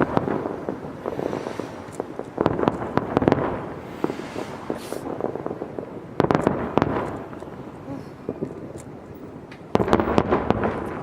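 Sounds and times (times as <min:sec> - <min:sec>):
fireworks bangs and pops: 0:00.0 - 0:11.0
high hiss: 0:01.0 - 0:02.4, 0:03.6 - 0:05.5.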